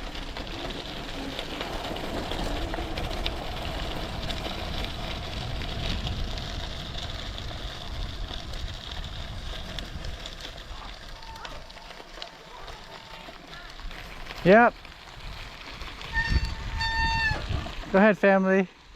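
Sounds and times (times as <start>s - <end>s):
bicycle tyres rolling on trail: 0.0s - 18.9s
wind rushing over microphone: 3.1s - 10.8s, 15.2s - 18.0s.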